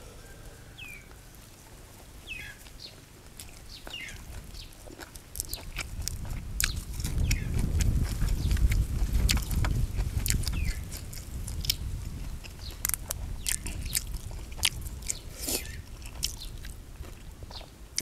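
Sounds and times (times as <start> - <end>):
bird chirping: 0.0 - 1.3, 2.2 - 3.0, 3.7 - 4.7
person chewing food: 2.3 - 18.0.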